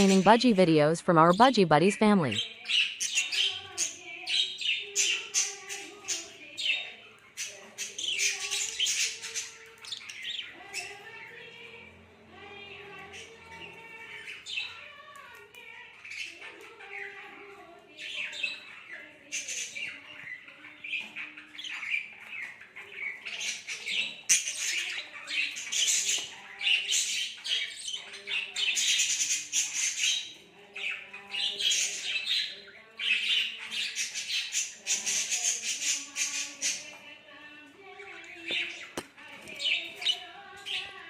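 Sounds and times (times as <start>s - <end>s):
budgerigars squawking and chattering: 0.0s - 0.2s.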